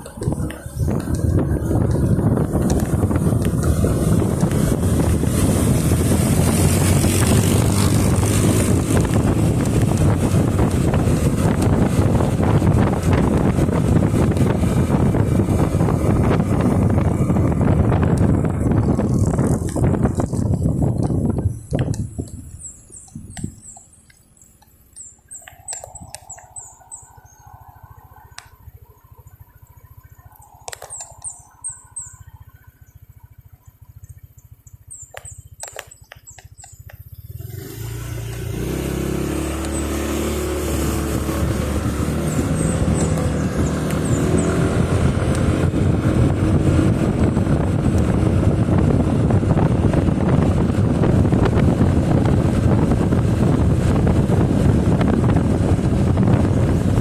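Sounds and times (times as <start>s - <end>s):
motorcycle engine: 0.0s - 57.0s
wind noise on microphone: 0.0s - 57.0s
clicks: 21.0s - 27.0s, 30.3s - 31.4s, 35.0s - 37.1s
high chirps: 21.4s - 37.8s.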